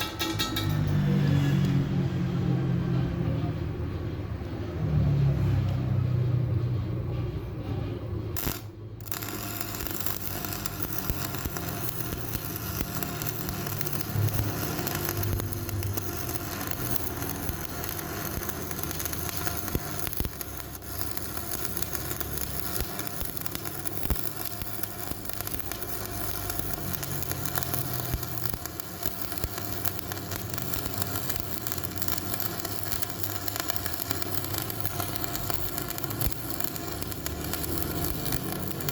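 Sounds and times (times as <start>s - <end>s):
arc welding sizzle: 8.3s - 38.9s.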